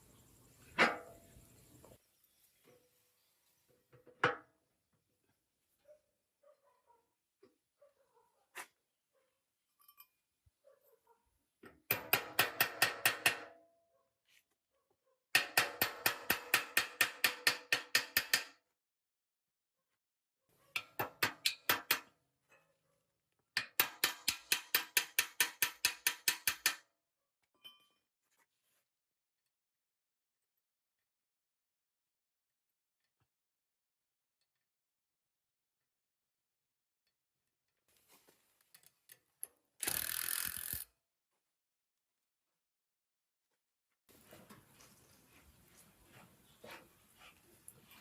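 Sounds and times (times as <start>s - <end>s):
rapid metallic clicks of hand tool: 11.9s - 13.5s, 15.4s - 18.6s, 20.8s - 22.1s, 23.6s - 26.8s, 39.8s - 40.9s.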